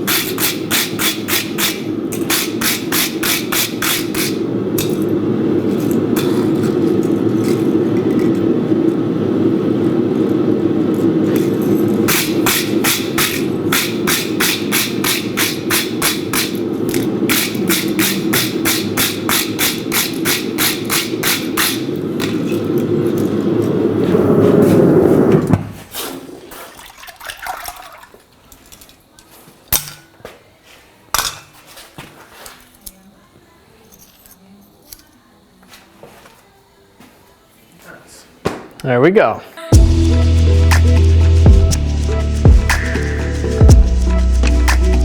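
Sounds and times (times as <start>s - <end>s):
hammer striking steel on anvil: 0.0s - 5.1s, 11.4s - 22.6s
low rushing noise: 2.9s - 25.8s, 39.7s - 45.0s.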